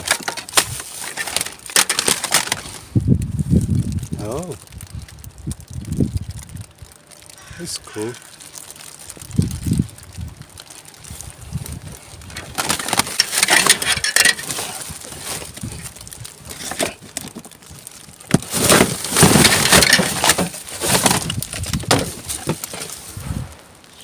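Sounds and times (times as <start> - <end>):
rummaging through rubbish bin: 0.0 - 2.8, 11.6 - 23.4.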